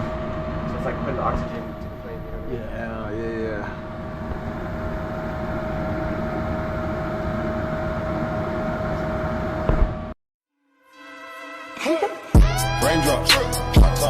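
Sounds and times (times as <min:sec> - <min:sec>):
gas furnace rushing and whining: 0:00.0 - 0:10.2.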